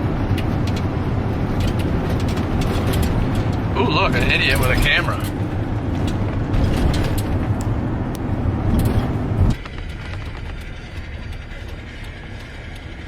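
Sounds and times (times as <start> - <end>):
vehicle rumble from inside: 0.0 - 13.0.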